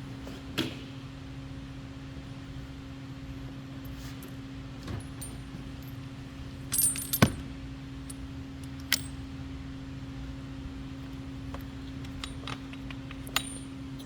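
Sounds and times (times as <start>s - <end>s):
steady low hum: 0.0s - 14.0s
metal hand tools clinking: 6.7s - 7.4s, 12.0s - 14.0s.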